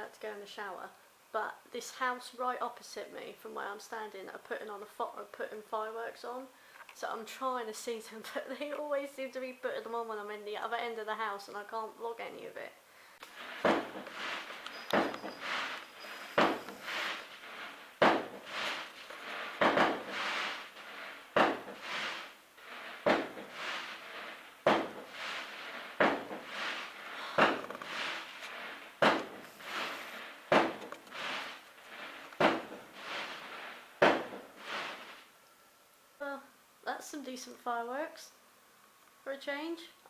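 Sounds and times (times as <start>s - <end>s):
fireworks bangs: 13.2s - 35.3s.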